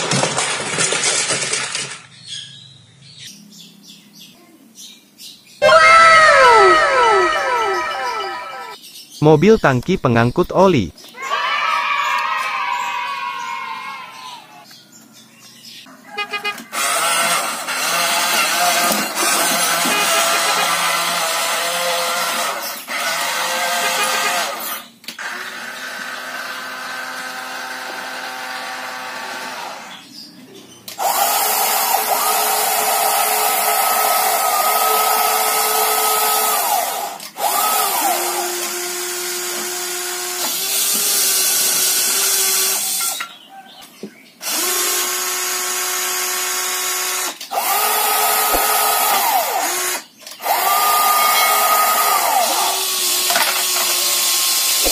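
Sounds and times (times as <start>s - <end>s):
toy vehicle motors whirring: 5.6s - 8.8s, 16.4s - 30.0s, 30.9s - 43.3s, 44.4s - 54.9s.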